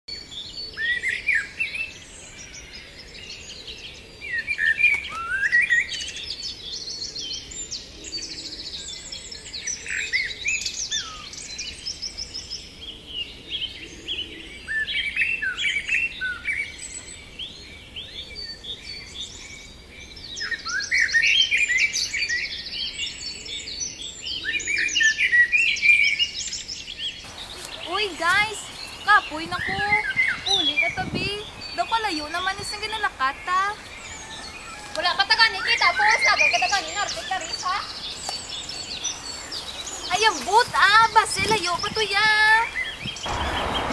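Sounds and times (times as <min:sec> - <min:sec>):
birds chirping and singing: 0:00.1 - 0:43.9.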